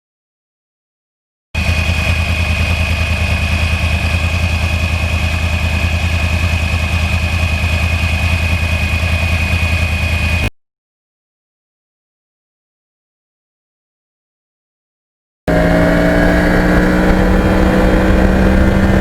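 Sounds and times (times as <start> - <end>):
motorcycle engine idling: 1.6 - 10.5, 15.5 - 19.0.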